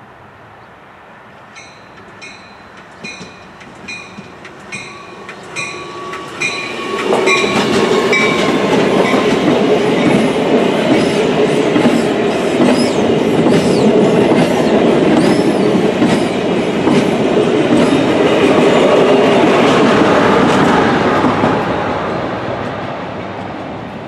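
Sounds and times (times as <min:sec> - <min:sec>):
train wheels clacking over rail joints: 0:02.0 - 0:21.6.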